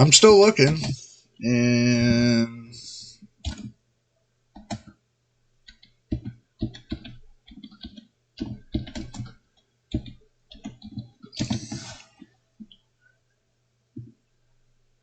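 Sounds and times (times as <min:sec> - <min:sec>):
faint low hum: 0:00.0 - 0:15.0
typing on a keyboard: 0:03.4 - 0:03.7, 0:04.6 - 0:05.0, 0:05.6 - 0:12.0.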